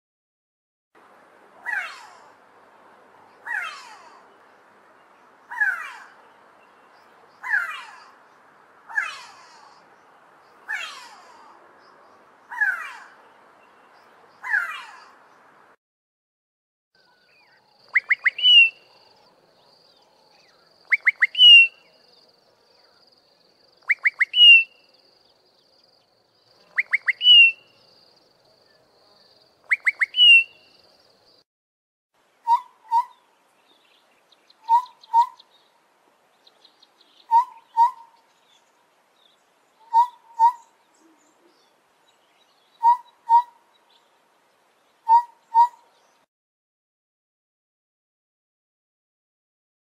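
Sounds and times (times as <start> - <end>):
songbird phrase with upward whistle: 17.2 - 19.1, 20.0 - 22.1, 23.8 - 24.9, 26.7 - 27.9, 29.6 - 30.8, 34.6 - 35.6, 36.8 - 38.2, 39.8 - 41.6, 45.0 - 45.9
bird low paired whistles: 17.9 - 18.9, 20.8 - 21.9, 23.8 - 24.8, 26.7 - 27.8, 29.6 - 30.7, 34.6 - 35.5, 37.2 - 38.2, 39.8 - 40.7, 42.8 - 43.6, 45.0 - 45.8.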